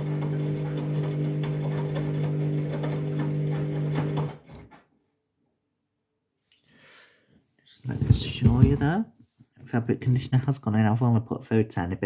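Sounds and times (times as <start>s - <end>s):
washing machine humming: 0.0s - 4.6s.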